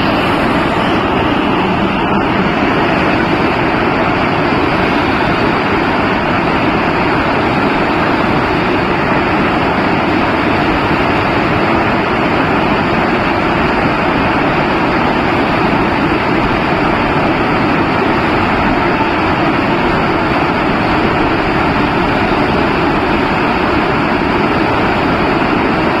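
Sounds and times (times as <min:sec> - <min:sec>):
heavy rain hissing: 0:00.0 - 0:26.0.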